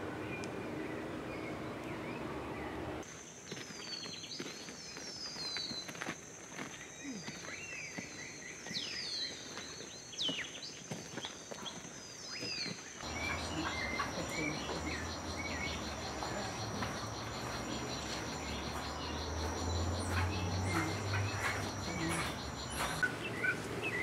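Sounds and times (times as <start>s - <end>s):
birds whistled calls and clicks: 3.4s - 24.0s
birds repeated whistled notes: 6.7s - 24.0s
insect drone: 13.0s - 23.0s.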